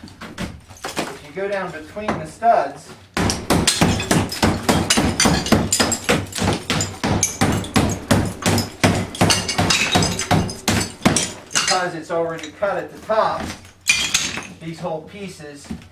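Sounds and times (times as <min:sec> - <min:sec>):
hammer blows breaking drywall: 0:03.2 - 0:12.5.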